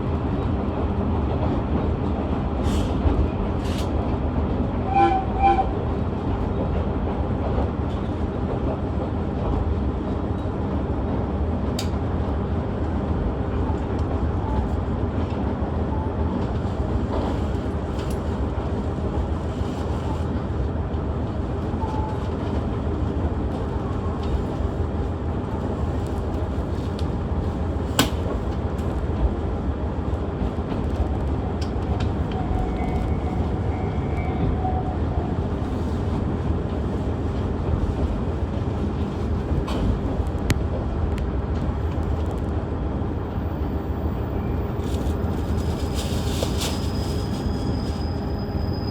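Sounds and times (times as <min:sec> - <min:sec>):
train rumbling on rails: 0:00.0 - 0:48.9.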